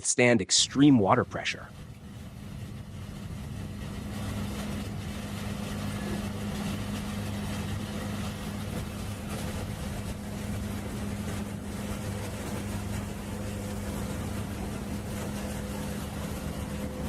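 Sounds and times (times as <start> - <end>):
heavy machinery hum: 0.6 - 17.0.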